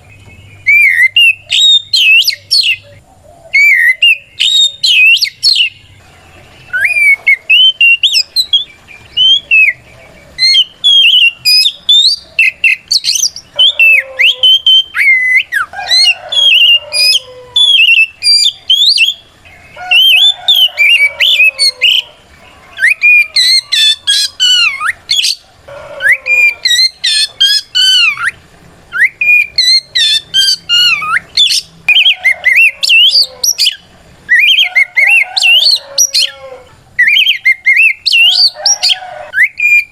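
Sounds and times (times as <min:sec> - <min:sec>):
magpie-robin whistled song: 0:00.0 - 0:39.9.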